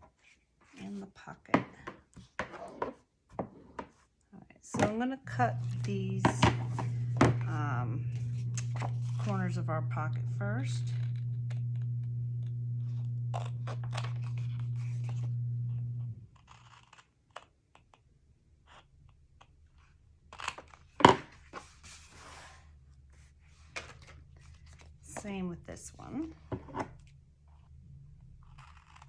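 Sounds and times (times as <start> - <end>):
steady low hum: 5.2 - 16.4.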